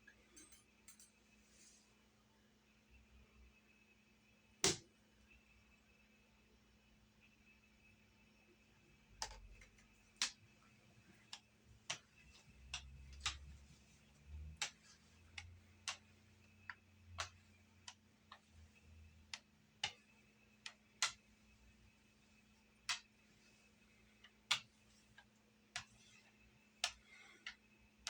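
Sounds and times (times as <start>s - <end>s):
low rumble of rolling dough: 8.4s - 28.0s.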